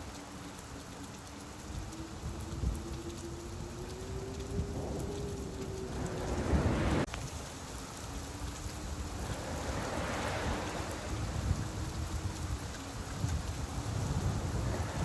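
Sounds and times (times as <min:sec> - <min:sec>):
rain falling: 0:00.0 - 0:15.0
low rumble: 0:02.1 - 0:07.1, 0:08.2 - 0:15.0
rushing swell: 0:03.0 - 0:07.1, 0:08.2 - 0:12.8.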